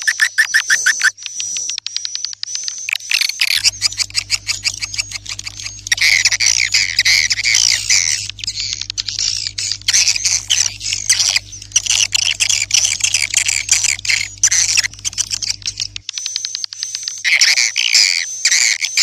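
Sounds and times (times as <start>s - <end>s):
swiftlets twittering and chirping: 0.0s - 1.1s, 3.0s - 16.3s
steady low hum: 3.6s - 16.0s.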